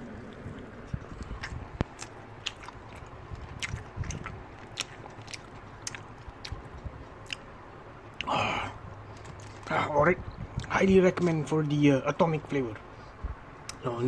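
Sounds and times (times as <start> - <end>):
chewing crispy fried chicken: 0.0 - 9.9.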